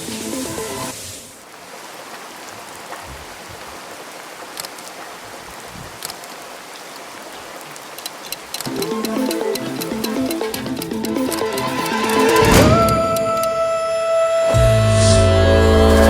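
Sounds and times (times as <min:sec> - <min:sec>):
music: 0:00.0 - 0:01.0, 0:08.7 - 0:16.0
rain hiss: 0:00.0 - 0:16.0
sharp ticks: 0:07.8 - 0:13.5.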